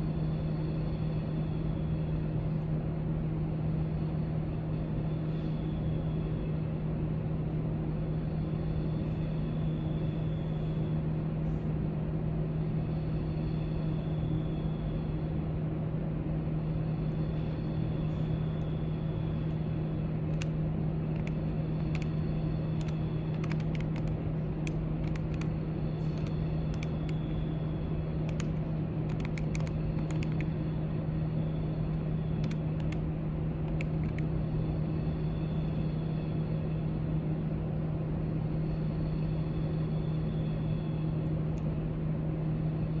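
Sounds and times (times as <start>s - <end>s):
low library drone: 0.0s - 43.0s
faint light clicks: 21.2s - 25.5s, 26.1s - 27.4s, 28.2s - 30.5s, 32.4s - 33.0s.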